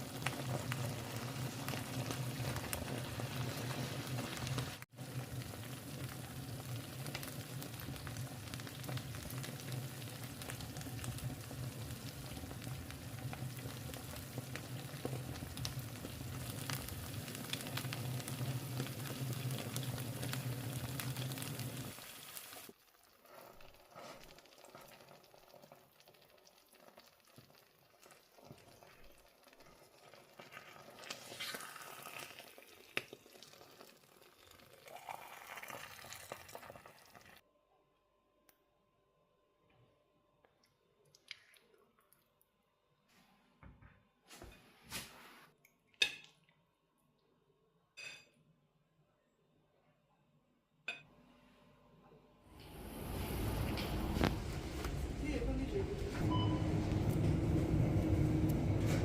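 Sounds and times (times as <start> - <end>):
food sizzling in a pan: 0.0 - 37.4, 52.5 - 56.9
scattered kitchen noises: 0.0 - 37.4, 43.0 - 46.6, 48.0 - 48.5, 50.9 - 59.0.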